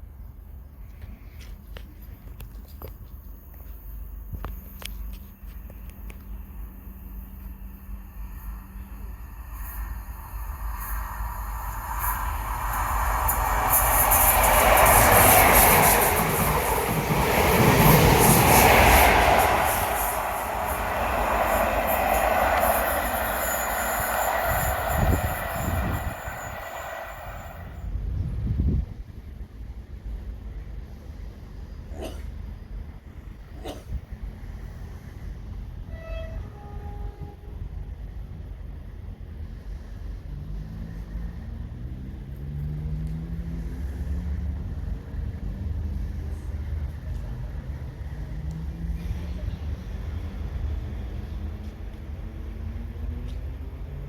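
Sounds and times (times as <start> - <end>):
train wheels rumbling on track: 0.9 - 54.0
train diesel engine rumbling: 2.9 - 28.1
high wheel squeal: 8.3 - 27.8.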